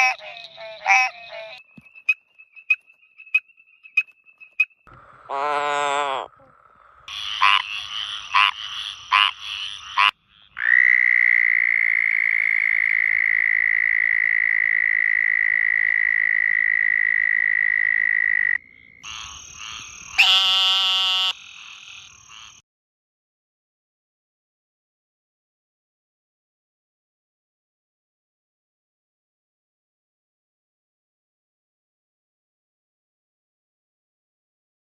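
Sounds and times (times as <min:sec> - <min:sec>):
frog trilling: 0:00.0 - 0:02.8, 0:05.3 - 0:22.6
frogs croaking: 0:00.0 - 0:22.6.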